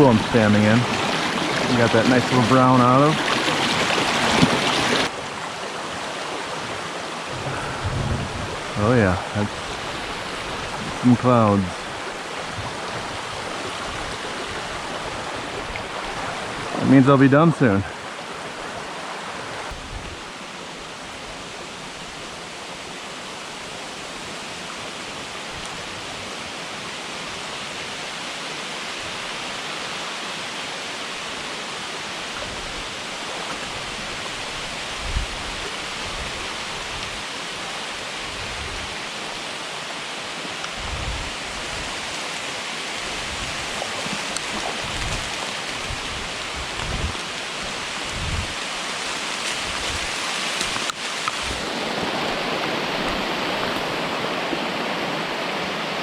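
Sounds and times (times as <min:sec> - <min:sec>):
stream water rushing: 0:00.0 - 0:56.0
low thumps: 0:07.3 - 0:09.6.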